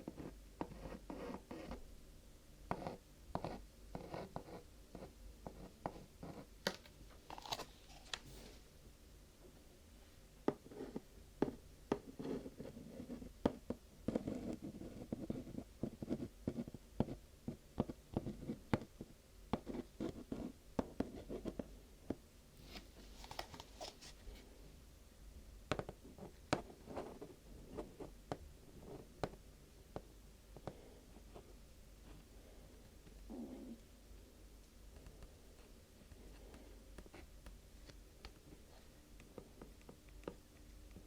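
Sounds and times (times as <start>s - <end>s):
soft rustle: 7.4s - 8.7s.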